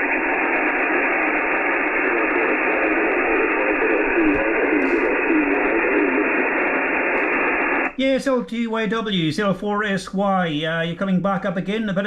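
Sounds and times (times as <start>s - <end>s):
faint wavering radio voice: 0.0s - 7.8s
radio receiver hiss: 0.0s - 8.1s.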